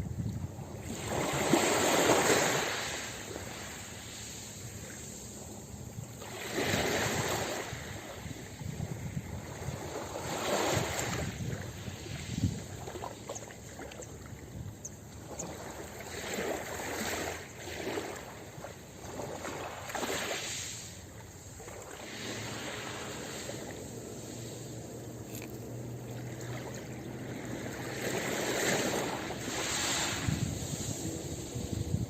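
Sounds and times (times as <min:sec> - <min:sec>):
wind on microphone: 0:00.0 - 0:03.8, 0:04.6 - 0:20.4, 0:26.4 - 0:32.0
ocean waves breaking: 0:00.7 - 0:32.0.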